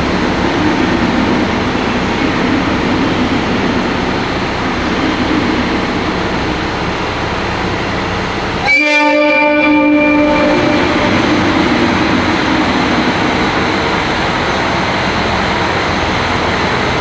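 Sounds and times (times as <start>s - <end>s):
diesel train rumbling: 0.0s - 17.0s
train horn blast: 8.6s - 11.6s.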